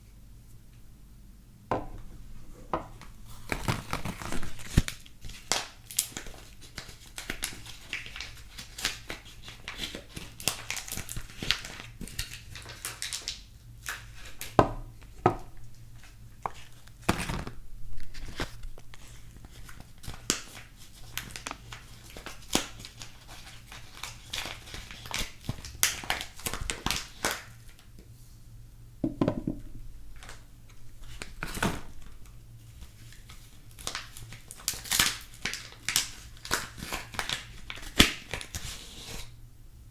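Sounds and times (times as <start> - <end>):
wrappers crinkling and rustling: 2.9 - 27.9, 30.1 - 39.4
wrapper tearing: 3.3 - 14.6, 16.0 - 27.8, 32.8 - 39.3
dull knocks: 29.0 - 29.8.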